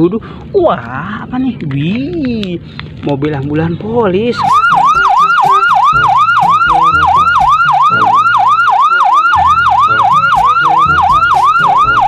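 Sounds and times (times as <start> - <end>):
low electronic notes: 4.0 - 12.0
toy electronic siren yelping: 4.3 - 12.0.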